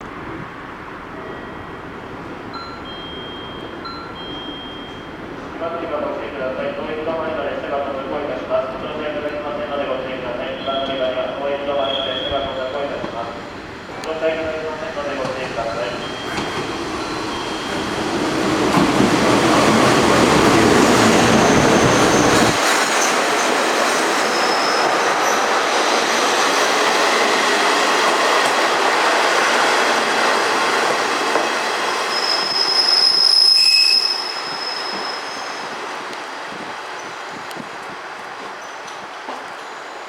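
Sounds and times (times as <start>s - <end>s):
diesel railcar running: 0.1s - 40.0s
brake and wheel squeal: 11.8s - 12.6s, 15.8s - 18.0s, 21.1s - 23.6s, 24.2s - 25.5s, 32.0s - 35.8s, 38.6s - 40.0s.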